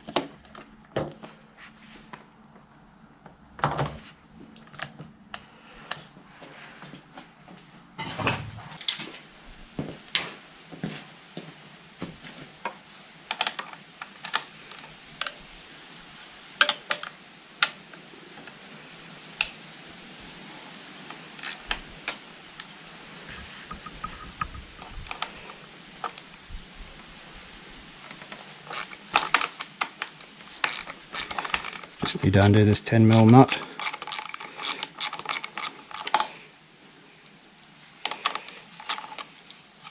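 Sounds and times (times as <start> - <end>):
hand tools clicking and knocking: 28.1 - 36.4.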